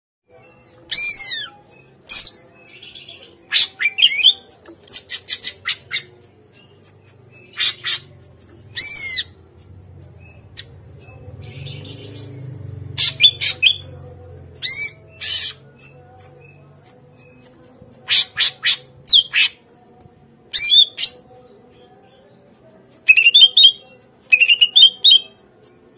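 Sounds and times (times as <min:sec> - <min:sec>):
bird squawking and chirping: 0:00.9 - 0:02.4, 0:07.5 - 0:08.1, 0:08.8 - 0:09.4, 0:13.0 - 0:13.9, 0:14.6 - 0:15.6.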